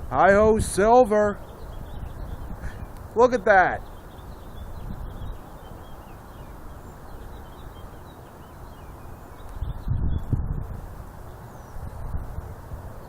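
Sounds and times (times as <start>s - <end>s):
wind rumble on microphone: 0.0s - 13.0s
bird chirps: 1.2s - 10.4s, 11.2s - 12.2s.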